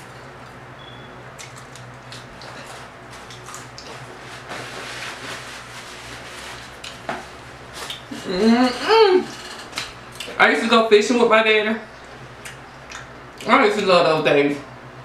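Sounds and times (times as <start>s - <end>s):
faint steady hum: 0.0s - 15.0s
wet chewing and mouth smacks: 1.4s - 4.0s, 7.8s - 8.1s, 9.7s - 10.4s, 12.0s - 13.5s.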